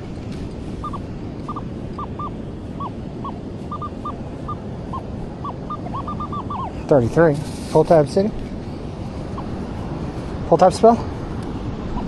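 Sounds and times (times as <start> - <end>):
surf rushing: 0.0 - 12.0
wind noise: 0.0 - 12.0
bird chirping: 0.8 - 6.9.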